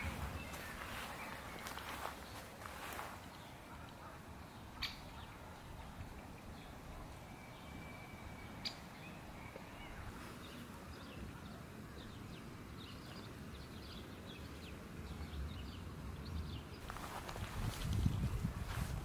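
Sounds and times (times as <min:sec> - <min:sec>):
low outdoor rumble: 0:00.0 - 0:19.0
songbirds chirping: 0:00.0 - 0:19.0.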